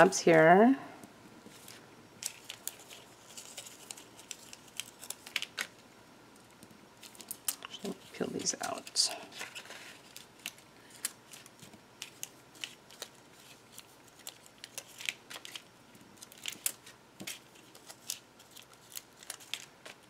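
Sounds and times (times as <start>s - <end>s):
paper clicks and crinkles: 1.5s - 5.8s, 6.4s - 20.0s.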